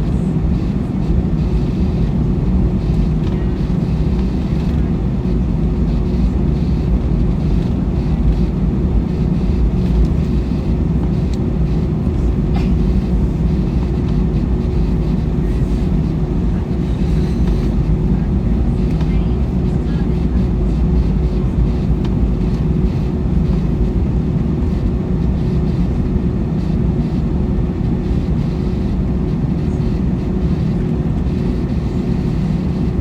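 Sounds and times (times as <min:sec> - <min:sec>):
airliner cabin engine drone: 0:00.0 - 0:33.0
constant hum: 0:00.0 - 0:33.0.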